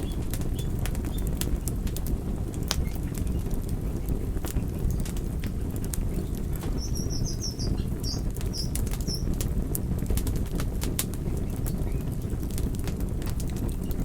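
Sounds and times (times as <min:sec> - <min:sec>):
wood fire crackling: 0:00.0 - 0:14.0
high chirps: 0:06.7 - 0:09.3.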